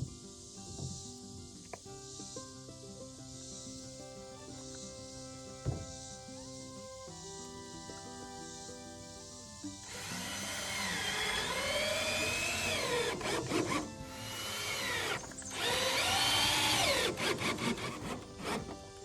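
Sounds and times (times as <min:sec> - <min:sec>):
power drill driving into wood: 0:09.9 - 0:18.8.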